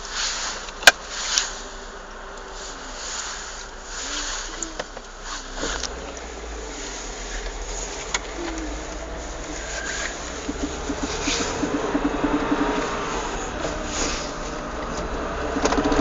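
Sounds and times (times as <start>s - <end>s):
car engine and road noise: 0.0s - 16.0s
sharp knocking clacks: 10.1s - 13.9s.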